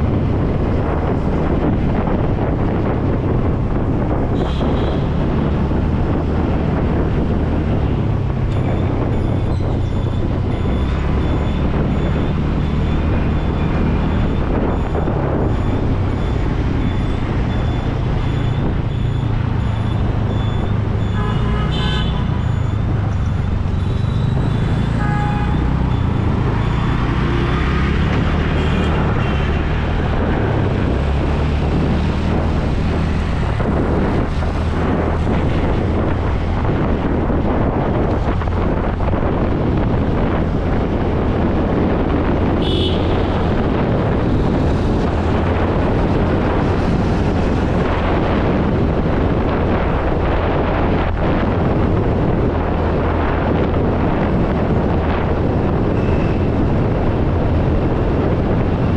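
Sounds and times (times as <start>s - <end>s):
traffic engine rumble: 0.0s - 58.9s
wind noise on microphone: 0.0s - 58.9s
vehicle horn tooting: 21.0s - 22.4s, 24.8s - 25.8s, 42.6s - 43.4s.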